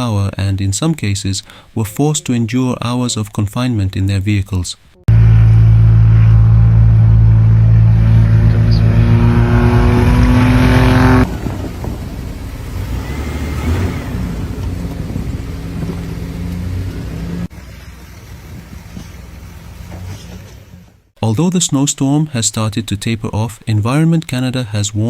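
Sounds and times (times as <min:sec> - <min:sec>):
car engine revving: 0:05.0 - 0:21.1
rough vehicle engine: 0:05.0 - 0:21.2.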